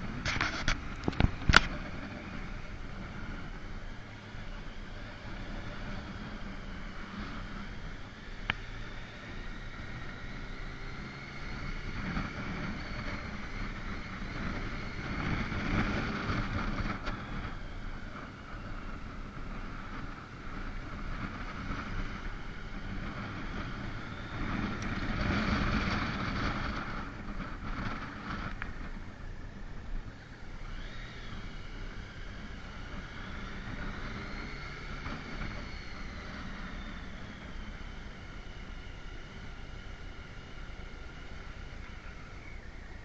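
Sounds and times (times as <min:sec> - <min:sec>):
motorcycle engine running: 0:00.0 - 0:43.0
wind on microphone: 0:11.7 - 0:38.2.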